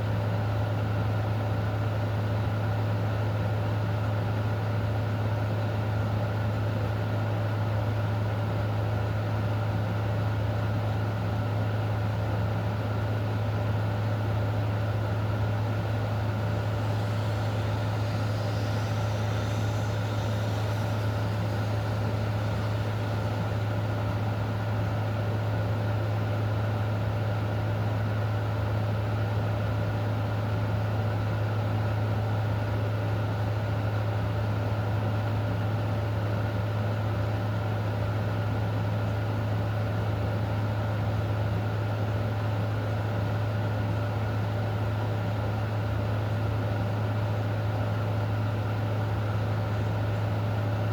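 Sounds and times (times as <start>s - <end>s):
loud low hum: 14.9s - 26.0s.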